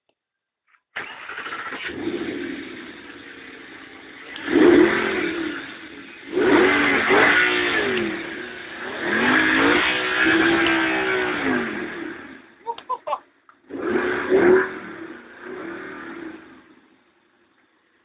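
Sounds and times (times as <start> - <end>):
car engine revving: 1.0 - 12.6, 13.6 - 16.9.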